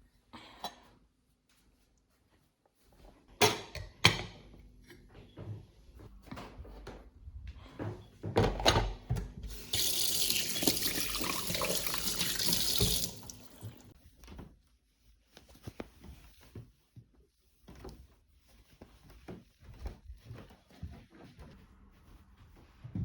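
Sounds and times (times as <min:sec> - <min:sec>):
water tap running into sink: 0:09.5 - 0:13.9.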